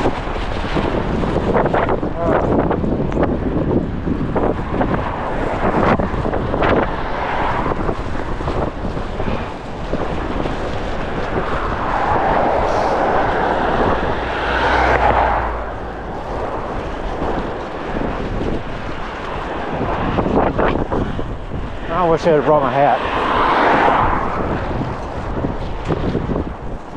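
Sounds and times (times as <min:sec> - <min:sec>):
wind buffeting microphone: 0:00.0 - 0:26.9
vehicle passing: 0:04.3 - 0:25.6.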